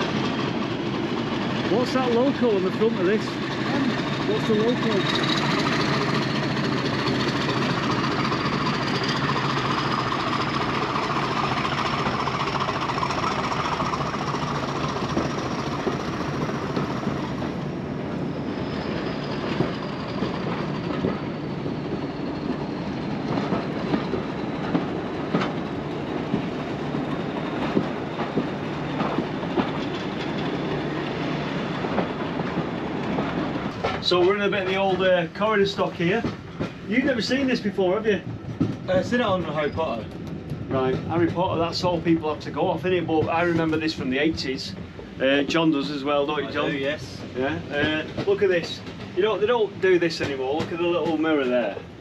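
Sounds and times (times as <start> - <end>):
wheels clicking over rail joints: 19.4 - 52.0.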